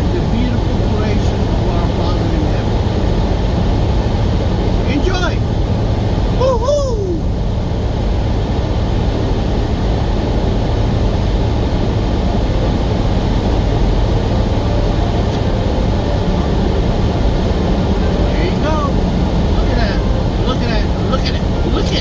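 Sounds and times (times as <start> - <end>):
diesel truck engine drone: 0.0 - 22.0
tyre and road noise: 8.2 - 22.0.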